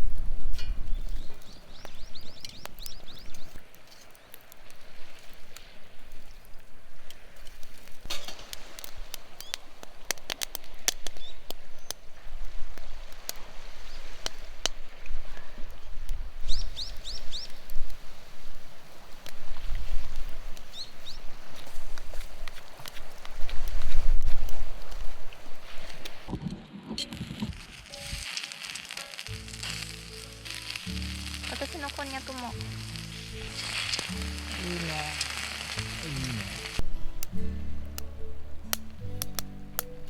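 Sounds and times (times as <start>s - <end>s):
sharp clicks and crackles: 25.8s - 37.3s.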